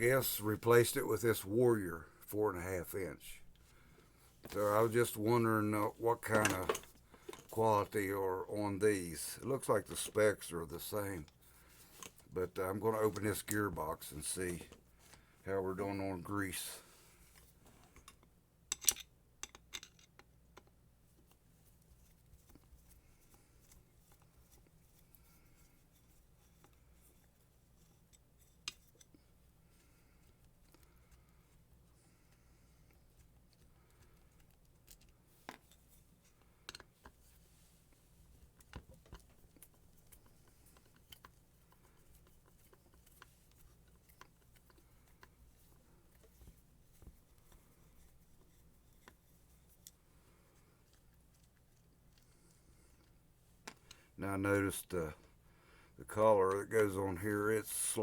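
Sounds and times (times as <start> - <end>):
low steady hum: 0.0 - 58.0
tools clicking and tapping: 18.0 - 20.8, 36.6 - 37.2
tools and metal parts clicking: 18.7 - 20.2.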